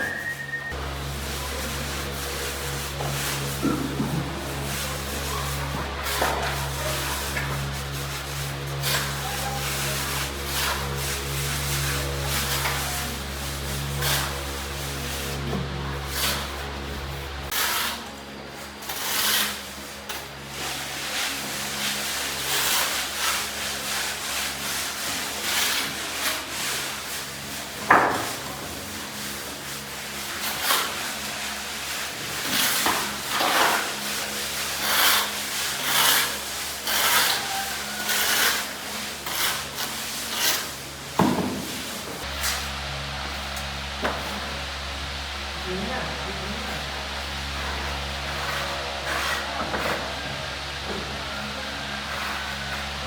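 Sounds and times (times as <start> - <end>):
rough scraping strokes: 0.0 - 43.4, 46.5 - 50.3, 51.8 - 53.0.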